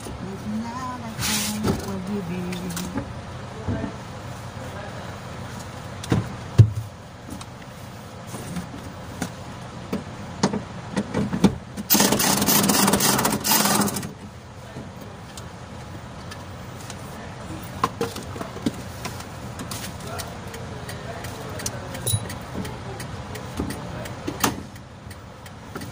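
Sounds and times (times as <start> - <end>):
hand tools clinking on metal: 21.9 - 22.4.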